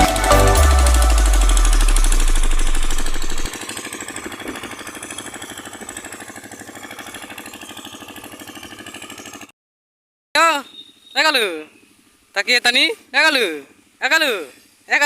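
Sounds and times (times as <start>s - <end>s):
loud music with heavy bass: 0.0s - 3.5s
small diesel engine running: 0.0s - 9.5s.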